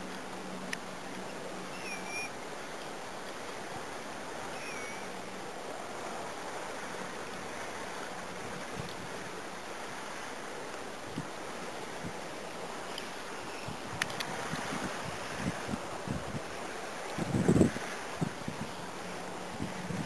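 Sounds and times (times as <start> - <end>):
steady outdoor hiss: 0.0 - 20.0
whistled bird notes: 1.7 - 2.3, 4.5 - 5.1.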